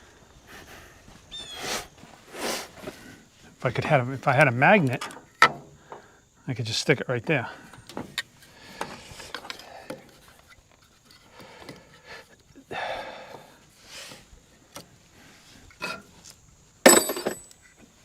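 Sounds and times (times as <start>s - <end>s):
hands rubbing and scraping parts: 8.8s - 12.5s.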